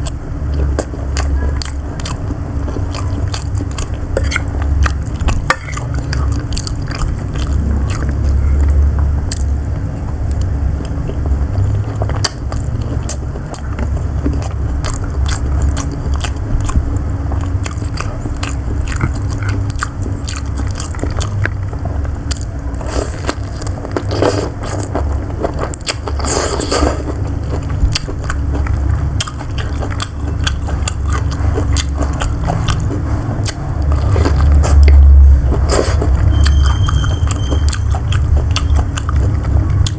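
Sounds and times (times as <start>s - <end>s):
close chewing: 0.0s - 39.9s
scrape: 22.8s - 23.3s, 24.1s - 24.8s, 26.2s - 27.1s.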